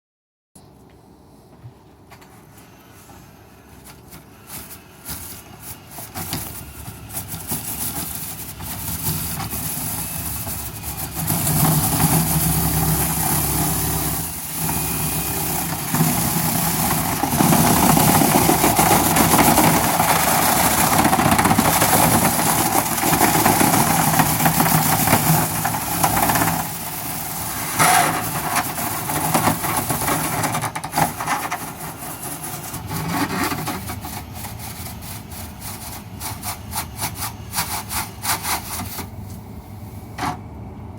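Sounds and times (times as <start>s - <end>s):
motor running loudly: 9.6s - 30.5s.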